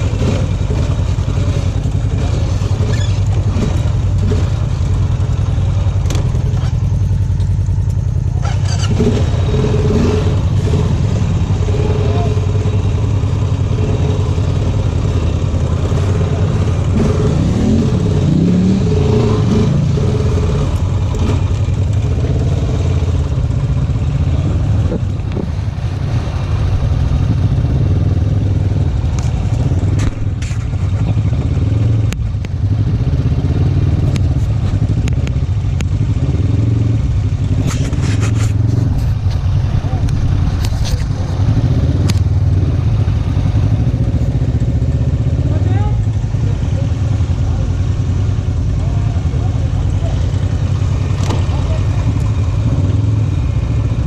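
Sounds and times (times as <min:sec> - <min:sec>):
off-road vehicle engine running: 0:00.0 - 0:54.0
vehicle knocks and rattles: 0:05.9 - 0:07.6.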